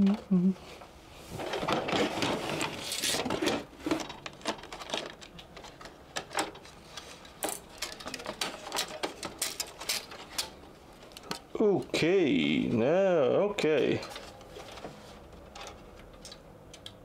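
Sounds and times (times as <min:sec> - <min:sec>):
rustling of device parts: 0:00.8 - 0:11.6, 0:13.7 - 0:17.0
clicks and taps of parts: 0:04.0 - 0:11.5, 0:15.3 - 0:17.0.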